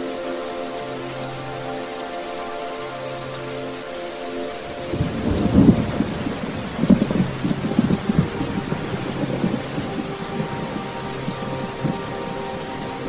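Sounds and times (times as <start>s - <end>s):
steady rain: 0.0s - 13.0s
rolling thunder: 4.9s - 13.0s.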